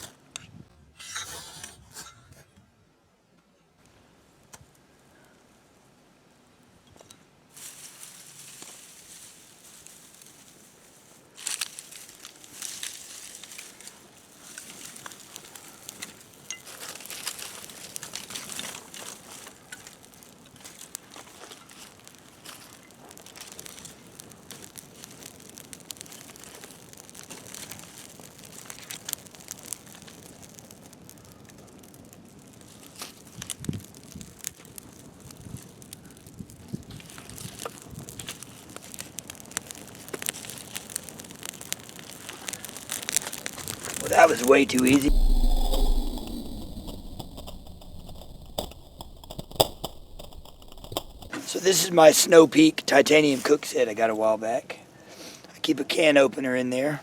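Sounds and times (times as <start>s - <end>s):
dry material crinkling: 36.9s - 51.6s.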